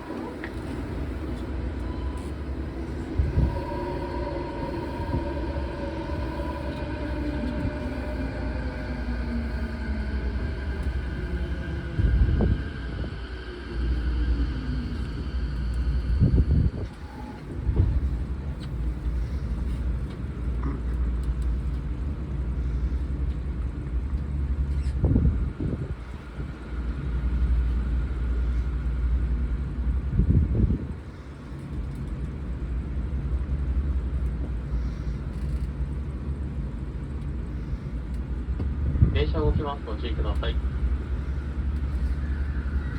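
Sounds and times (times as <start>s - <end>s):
train motor tones: 0.0s - 21.5s
train interior rumble: 0.0s - 42.9s.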